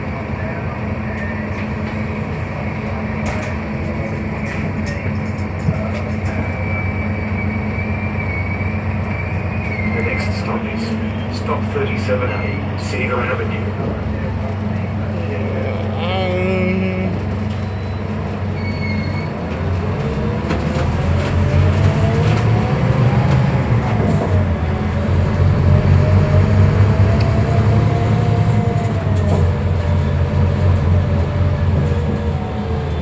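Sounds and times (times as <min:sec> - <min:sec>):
bus drivetrain rumble and whine: 0:00.0 - 0:33.0.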